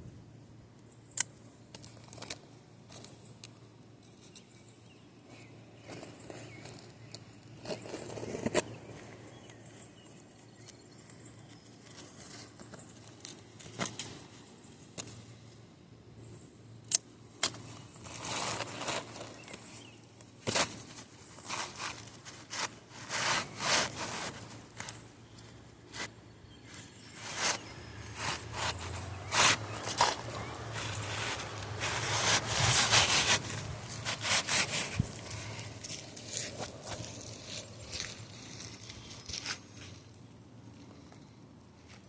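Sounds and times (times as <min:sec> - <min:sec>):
shingles scraping and rustling: 0:17.5 - 0:19.8, 0:20.4 - 0:25.0, 0:25.9 - 0:39.9.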